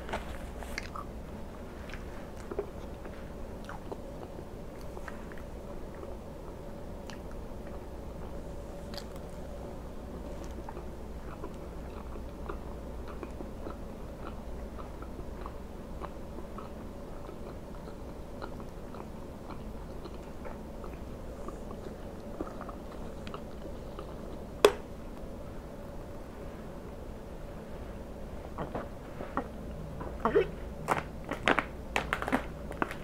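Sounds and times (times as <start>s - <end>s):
chewing food: 0.1s - 9.6s, 10.2s - 24.8s.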